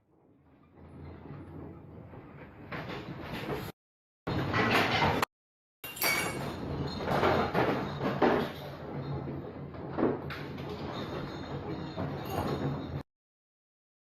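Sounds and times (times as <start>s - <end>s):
objects rattling and clattering: 0.2s - 5.3s, 5.9s - 13.1s.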